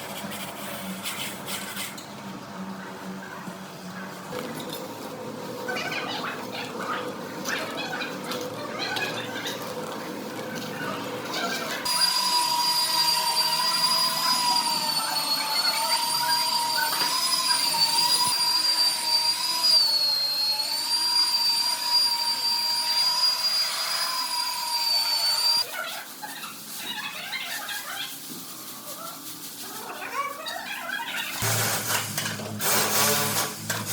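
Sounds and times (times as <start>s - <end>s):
power tool motor whine: 11.8s - 25.6s, 31.4s - 33.9s.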